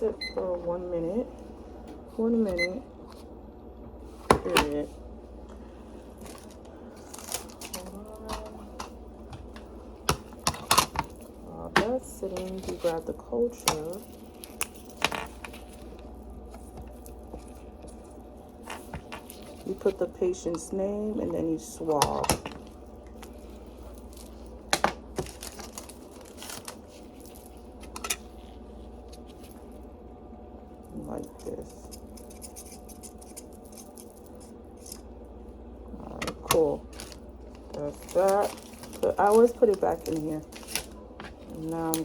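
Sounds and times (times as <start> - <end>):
steady hum: 0.0 - 42.0
plastic crinkling and scraping: 5.8 - 20.7, 21.4 - 29.8, 36.0 - 42.0.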